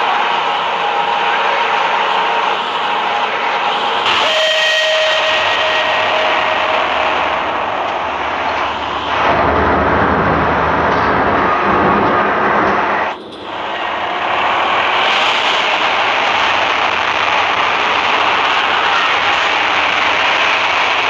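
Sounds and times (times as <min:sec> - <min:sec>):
steam locomotive rushing: 0:00.0 - 0:21.0
low rhythmic locomotive beats: 0:04.0 - 0:20.2.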